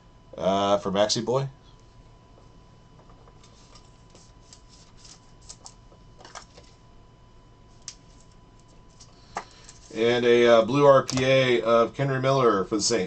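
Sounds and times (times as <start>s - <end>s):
trading cards rustling: 3.4s - 6.8s, 7.8s - 10.0s.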